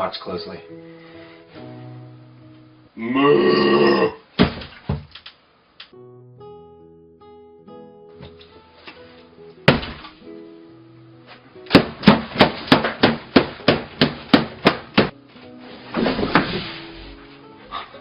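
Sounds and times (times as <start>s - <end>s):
background music: 0.0s - 4.0s, 5.9s - 18.0s
sharp knocks: 11.7s - 15.2s.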